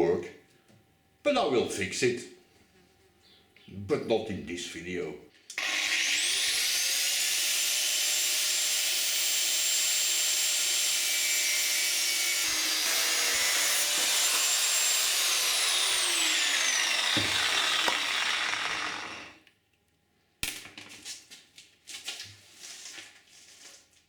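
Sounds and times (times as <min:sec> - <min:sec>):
angle grinder cutting: 0:05.5 - 0:19.5.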